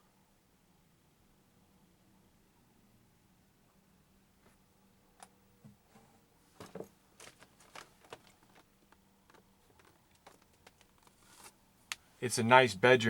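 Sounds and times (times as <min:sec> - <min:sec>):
light clicks and rustles of handling: 0:05.2 - 0:12.1.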